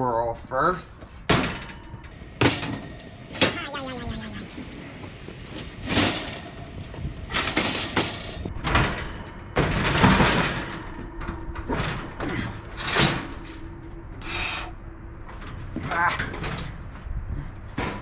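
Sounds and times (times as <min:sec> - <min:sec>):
metal clanks and bangs: 0:01.3 - 0:03.8, 0:04.4 - 0:13.4
metal scraping: 0:04.3 - 0:08.5.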